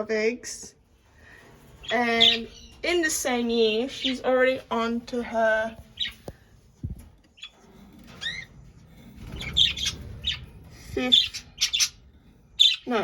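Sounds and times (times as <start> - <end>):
budgerigars chirping and squawking: 1.4 - 6.6, 7.3 - 13.0.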